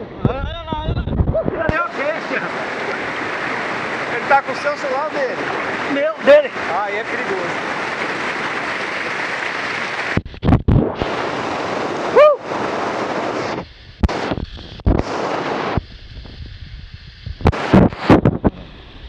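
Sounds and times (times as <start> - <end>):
muffled low thumps: 0.0 - 1.8, 10.1 - 11.0, 13.6 - 18.7
waterfall rushing: 1.5 - 10.2, 11.0 - 15.8, 17.5 - 18.9
person shouting: 12.1 - 12.4.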